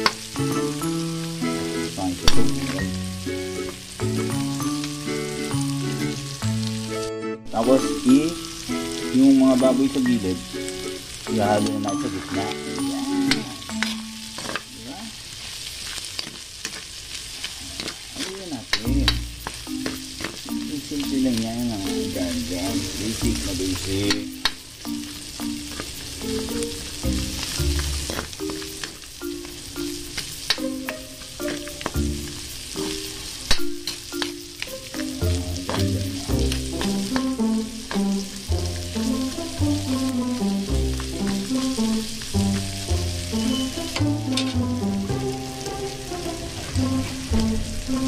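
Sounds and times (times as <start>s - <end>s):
food sizzling in oil: 0.0s - 48.0s
metal spatula scraping wok: 7.8s - 20.7s, 25.6s - 29.1s, 40.9s - 48.0s
low stepping notes: 18.3s - 48.0s.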